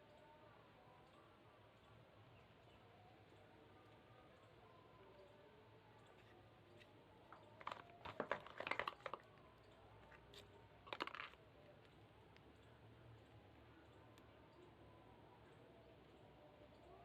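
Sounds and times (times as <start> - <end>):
packaging clicks and crinkles: 6.1 - 12.5.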